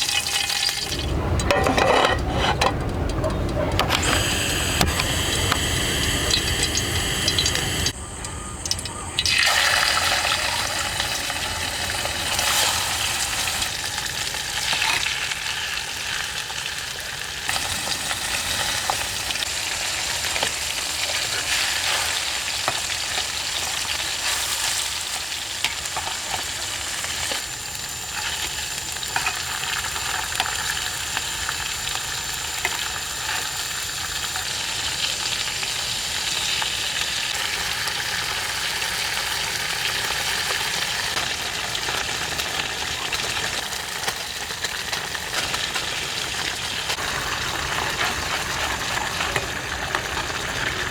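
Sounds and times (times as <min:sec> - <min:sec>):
food sizzling in a pan: 0:00.0 - 0:01.1, 0:03.9 - 0:08.1, 0:08.7 - 0:50.9.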